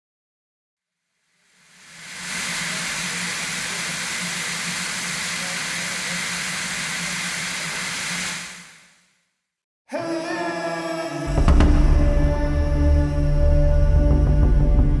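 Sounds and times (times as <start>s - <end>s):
steam hissing: 1.4s - 9.0s
low hum: 11.3s - 15.0s.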